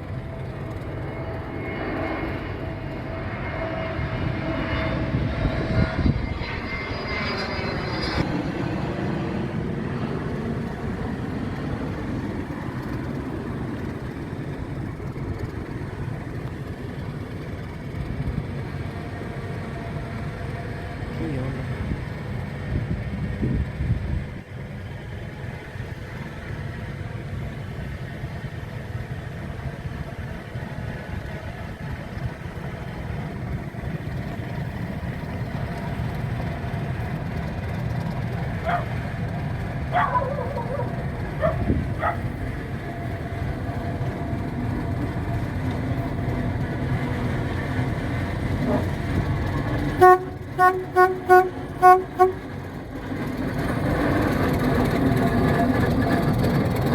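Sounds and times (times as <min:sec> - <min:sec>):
diesel locomotive rumbling: 0:00.0 - 0:56.9
locomotive horn toots: 0:48.6 - 0:52.7.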